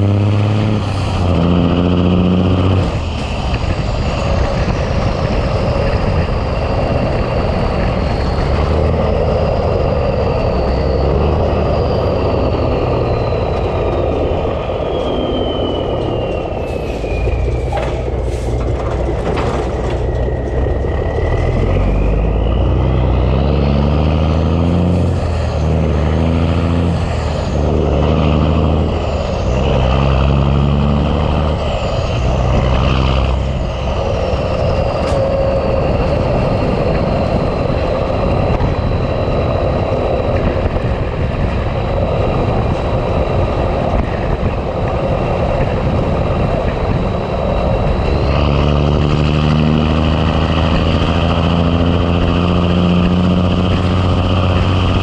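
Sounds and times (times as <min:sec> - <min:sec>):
diesel truck engine under load: 0:00.0 - 0:55.0
high whistle: 0:10.4 - 0:18.2.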